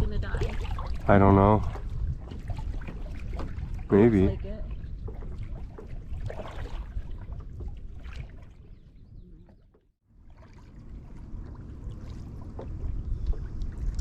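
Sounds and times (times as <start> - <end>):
water lapping on hull: 0.0 - 14.0
water splashing from paddle: 0.0 - 14.0
low steady rumble: 10.2 - 14.0.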